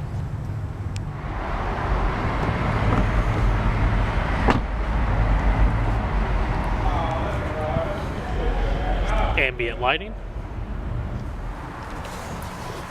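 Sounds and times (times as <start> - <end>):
car engine starting and idling: 0.0 - 12.9.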